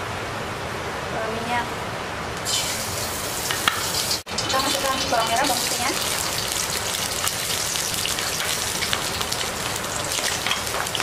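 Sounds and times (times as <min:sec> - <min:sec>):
shallots and garlic sizzling in oil: 0:02.4 - 0:11.0.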